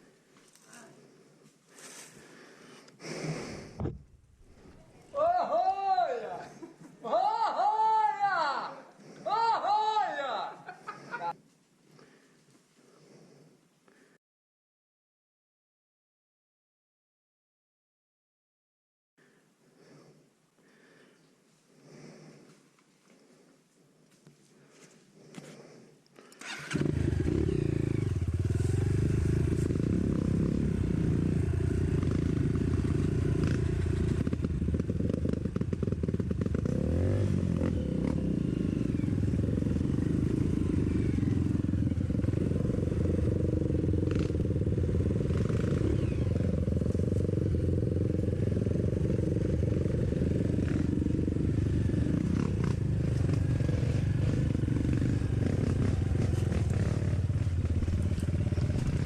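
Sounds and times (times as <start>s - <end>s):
dirt bike engine running: 26.5s - 59.0s.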